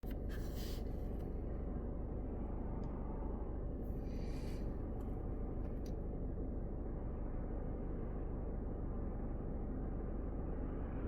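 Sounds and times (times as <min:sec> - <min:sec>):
car road rumble: 0:00.0 - 0:05.9.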